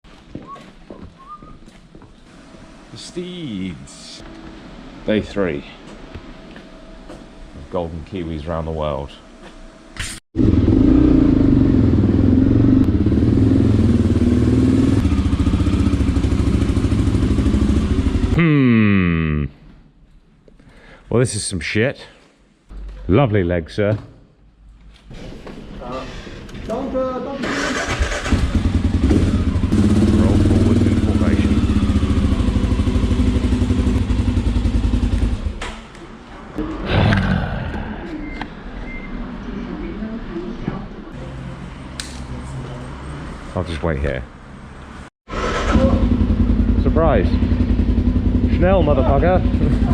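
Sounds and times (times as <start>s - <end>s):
motorcycle engine running: 10.4s - 18.4s, 28.1s - 35.6s, 45.6s - 49.9s
sharp click: 42.0s - 42.3s.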